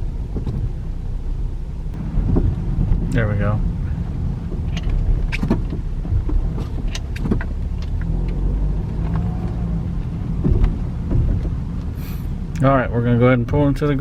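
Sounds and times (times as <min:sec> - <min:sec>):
road and engine rumble: 0:00.0 - 0:14.0
short clunks and knocks: 0:00.3 - 0:00.8, 0:04.4 - 0:11.7.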